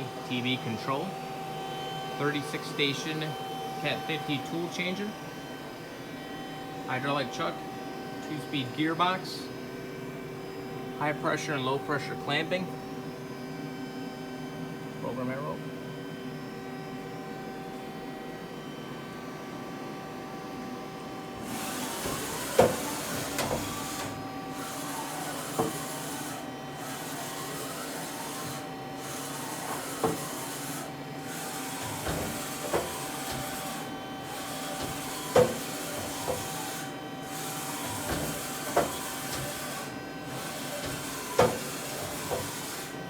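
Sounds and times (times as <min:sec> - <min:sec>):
machine hum: 0:00.0 - 0:43.0
machine hiss: 0:21.4 - 0:42.9
sharp machine clunk: 0:21.4 - 0:42.9.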